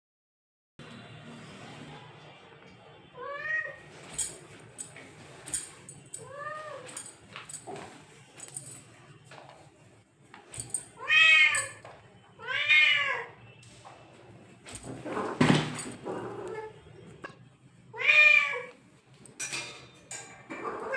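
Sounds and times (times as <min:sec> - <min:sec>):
cat meowing: 0:03.2 - 0:03.8, 0:06.2 - 0:07.0, 0:11.0 - 0:11.8, 0:12.4 - 0:13.4, 0:15.0 - 0:16.8, 0:17.9 - 0:18.8, 0:20.5 - 0:20.9.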